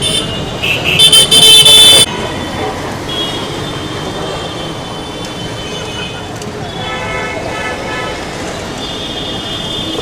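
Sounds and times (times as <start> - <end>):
vehicle horn blaring: 0.0 - 2.1
road traffic noise: 0.0 - 10.0.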